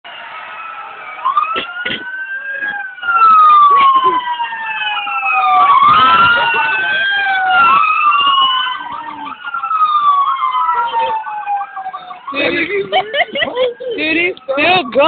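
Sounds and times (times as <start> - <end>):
police sirens wailing: 0.0 - 15.0.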